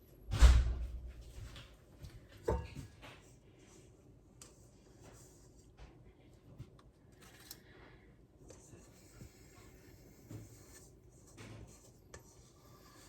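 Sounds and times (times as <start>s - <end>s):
batter scraped from mixing bowl: 8.6s - 13.0s.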